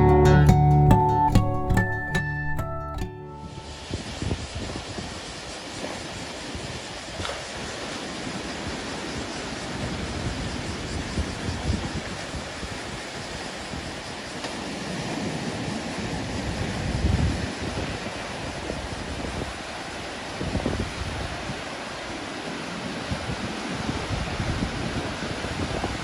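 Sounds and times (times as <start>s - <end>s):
ocean surf washing: 3.2s - 26.0s
wind buffeting microphone: 3.6s - 7.7s, 8.5s - 14.2s, 15.0s - 26.0s.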